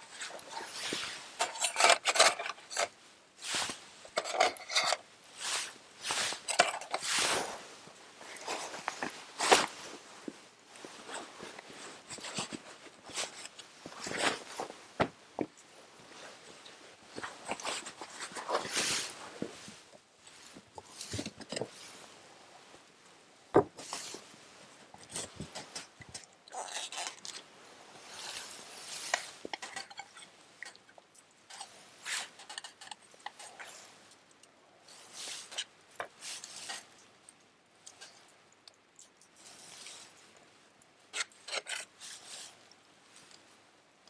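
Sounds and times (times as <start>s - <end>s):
utensils and dishes clinking: 0.2s - 2.9s, 4.1s - 5.0s, 6.0s - 7.4s.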